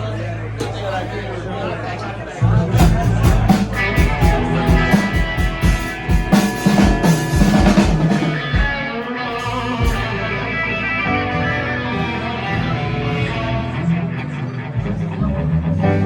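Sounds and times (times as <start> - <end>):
drum kit: 2.6 - 10.7
electric guitar chords: 2.8 - 16.0.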